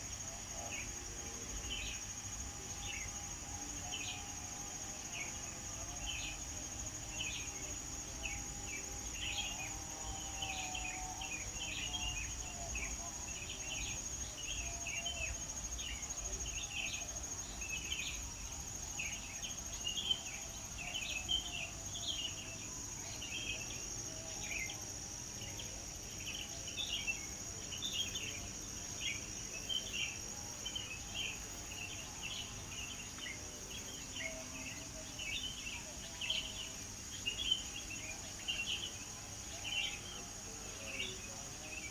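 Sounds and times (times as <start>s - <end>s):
high-pitched insect trill: 0.0s - 41.9s.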